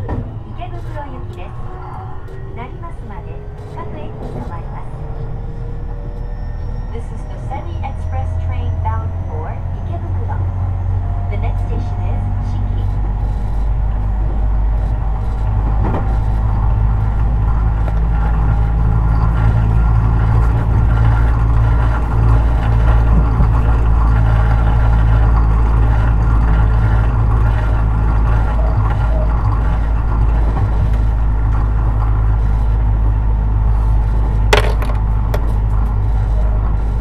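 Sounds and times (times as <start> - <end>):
low rumble of train wheels: 0.0 - 37.0.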